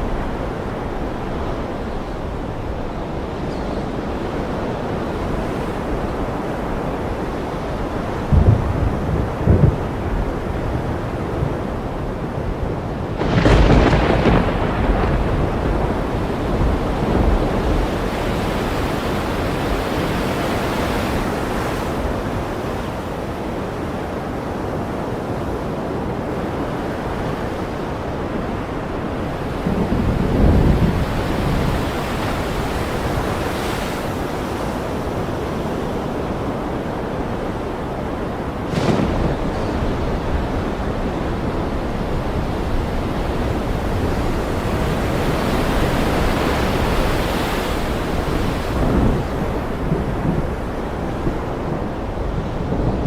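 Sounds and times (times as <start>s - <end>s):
ocean waves washing: 0.0s - 53.0s
thunder crack: 8.2s - 11.8s, 13.2s - 18.1s, 38.2s - 45.0s
deep thunder rumble: 8.2s - 18.6s, 29.2s - 33.3s, 37.0s - 47.2s, 47.8s - 53.0s.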